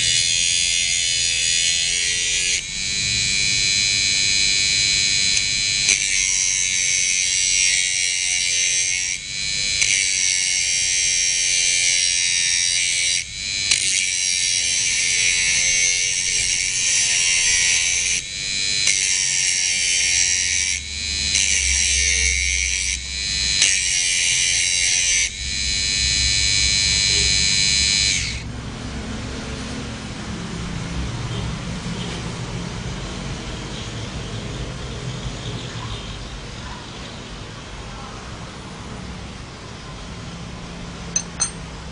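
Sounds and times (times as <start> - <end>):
electric grinder whining: 0.0 - 28.9.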